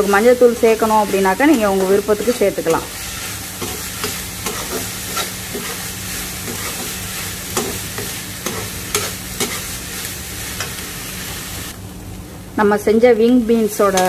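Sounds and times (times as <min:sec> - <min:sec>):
spatula scraping and tapping pan: 0:00.0 - 0:09.8
food sizzling in oil: 0:00.0 - 0:11.8, 0:13.4 - 0:14.0.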